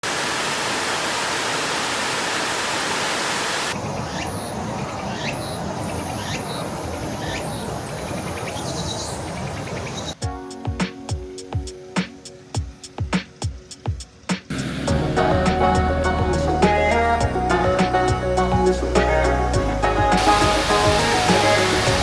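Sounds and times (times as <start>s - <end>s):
rushing water: 0.0s - 3.8s, 14.5s - 22.0s
music with a beat: 10.2s - 22.0s.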